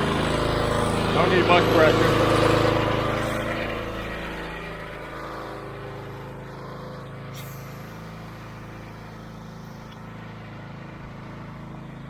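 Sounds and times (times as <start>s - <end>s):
small gasoline engine running: 0.0s - 12.0s.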